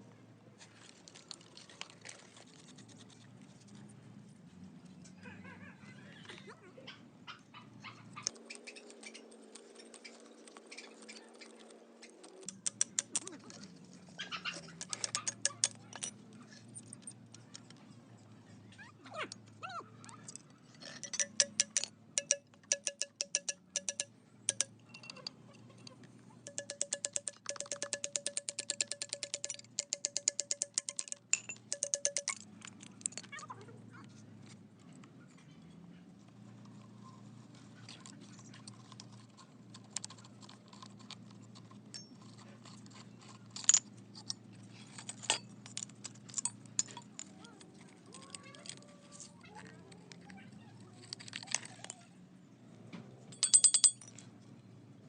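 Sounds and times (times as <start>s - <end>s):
metallic clicks and taps: 12.4s - 13.5s, 14.5s - 16.1s, 20.3s - 25.4s, 26.5s - 33.3s, 53.3s - 54.2s
ratchet wrench ticking: 21.0s - 24.8s, 26.5s - 32.4s.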